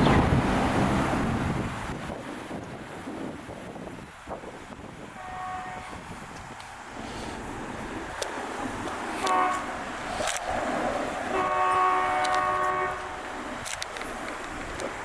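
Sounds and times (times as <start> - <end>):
rumble of passing train: 0.0 - 15.0
train horn blasts: 5.2 - 6.1, 9.2 - 9.8, 11.3 - 13.4.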